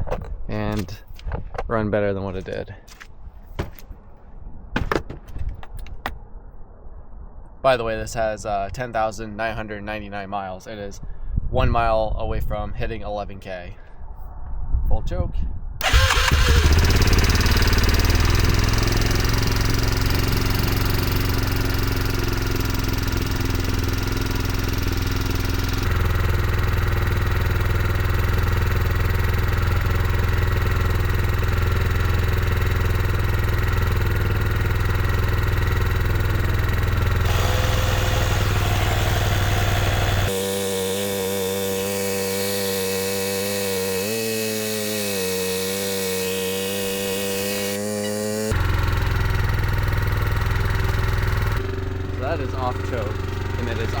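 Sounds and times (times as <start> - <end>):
atv engine running: 15.8 - 44.3, 45.0 - 54.0.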